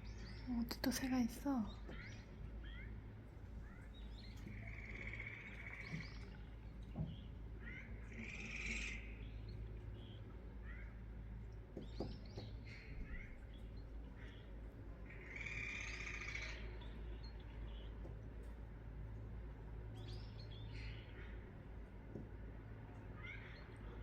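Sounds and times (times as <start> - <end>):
buzzy bird trills: 0.0 - 11.0, 11.8 - 18.0
small birds chirping: 0.0 - 24.0.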